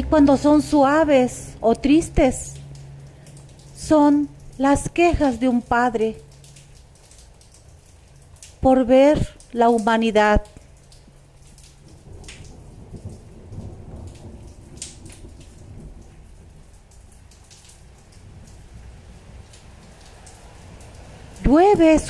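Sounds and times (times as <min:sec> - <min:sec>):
gentle rain falling: 0:00.0 - 0:22.0
distant thunder rumble: 0:11.8 - 0:17.0.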